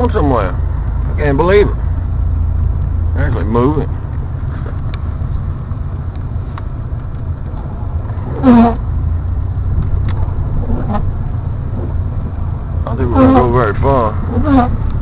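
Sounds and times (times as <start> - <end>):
vehicle engine rumbling: 0.0 - 15.0
driver vocal sound: 12.8 - 14.7.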